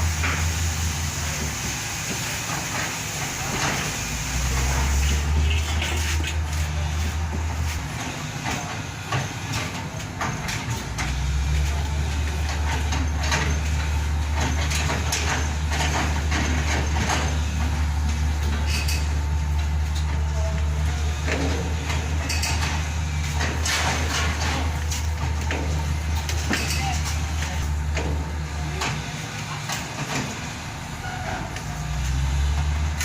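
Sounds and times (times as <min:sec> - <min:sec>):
diesel engine droning: 0:00.0 - 0:33.0
metal clanks and knocks: 0:12.3 - 0:20.5, 0:21.2 - 0:30.4.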